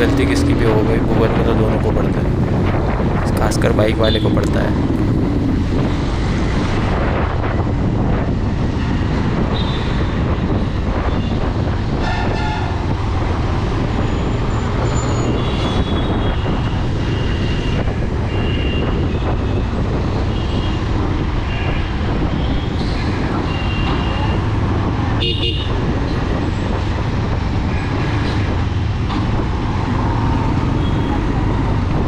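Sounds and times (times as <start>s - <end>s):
motorcycle engine hum: 0.0s - 32.0s
road noise: 0.0s - 32.0s
vehicle horns tooting: 12.0s - 12.9s, 14.1s - 16.8s, 17.5s - 19.2s, 23.4s - 24.4s, 25.2s - 25.8s.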